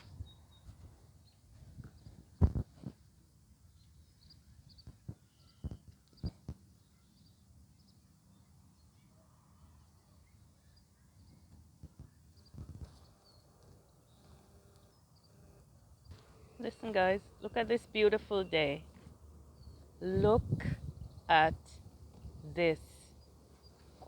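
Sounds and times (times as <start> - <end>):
faint bird chirps: 3.7 - 20.0.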